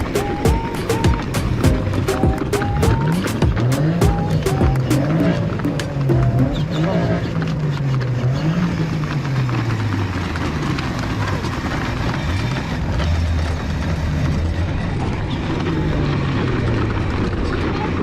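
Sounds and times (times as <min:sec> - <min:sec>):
clicks: 0:00.0 - 0:08.2
car engine running: 0:00.0 - 0:18.0
outdoor noise: 0:00.0 - 0:18.0.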